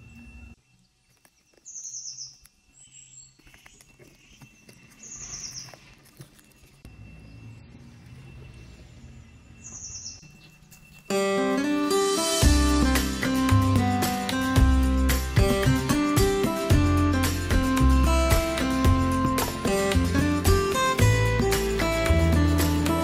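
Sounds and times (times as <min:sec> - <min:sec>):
bird chirping trills: 0:00.0 - 0:14.6.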